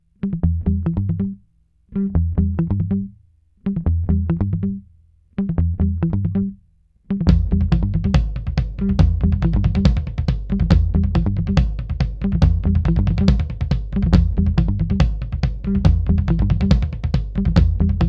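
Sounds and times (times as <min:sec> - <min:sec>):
band with drums playing: 0:07.3 - 0:18.0.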